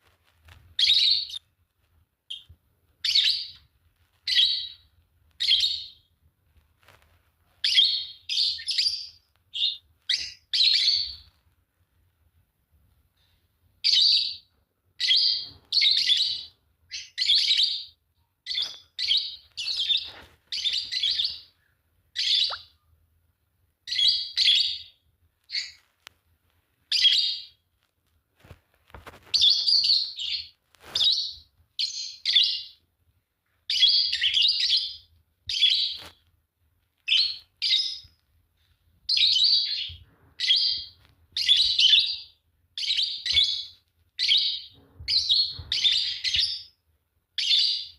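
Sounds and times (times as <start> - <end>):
lovebirds chirping: 0.7 - 1.5, 2.2 - 6.2, 7.5 - 11.5, 13.1 - 23.0, 23.8 - 25.9, 26.8 - 27.6, 29.3 - 32.9, 33.6 - 36.2, 37.0 - 46.8, 47.4 - 47.9.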